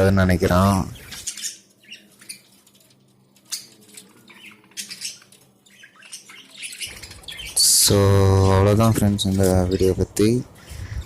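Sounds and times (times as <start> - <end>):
budgerigar chirping: 4.4 - 7.8.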